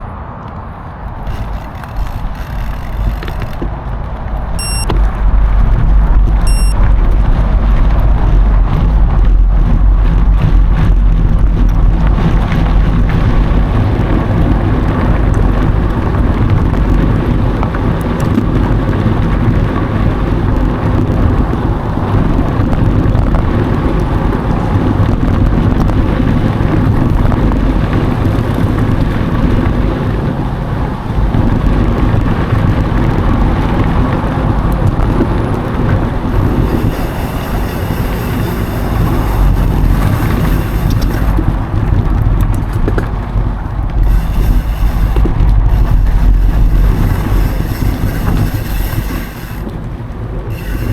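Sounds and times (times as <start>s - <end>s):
wind buffeting microphone: 0.0s - 50.9s
bike tyres rolling on dirt: 0.6s - 50.9s
short electronic beeps: 4.6s - 5.0s, 6.4s - 6.8s.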